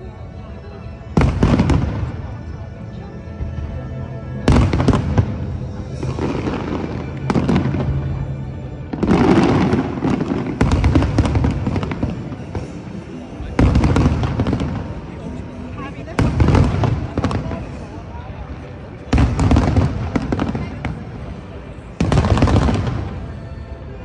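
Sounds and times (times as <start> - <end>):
fireworks bangs with crackle: 1.1 - 2.4, 4.4 - 18.0, 19.0 - 23.4.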